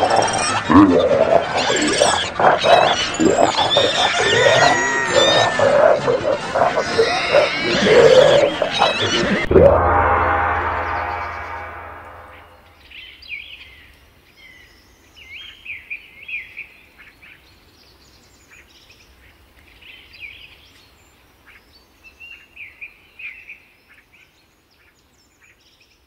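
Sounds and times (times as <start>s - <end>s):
birds chirping: 0.0s - 9.5s.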